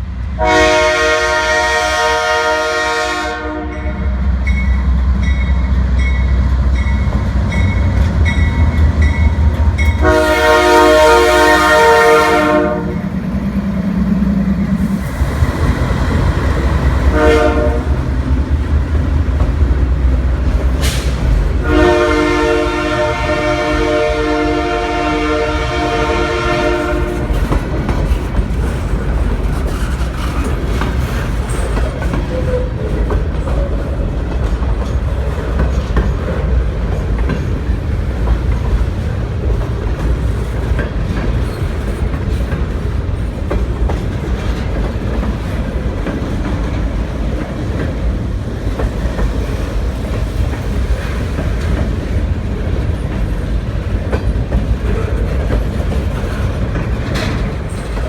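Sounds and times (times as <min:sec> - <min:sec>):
model locomotive horn: 0:00.4 - 0:04.2, 0:10.0 - 0:13.0, 0:17.0 - 0:18.0, 0:21.6 - 0:27.4.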